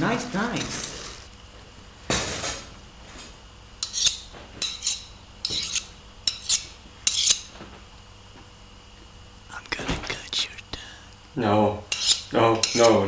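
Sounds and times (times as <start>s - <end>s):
metal tools scraping and clinking: 2.2s - 7.5s, 11.9s - 13.0s.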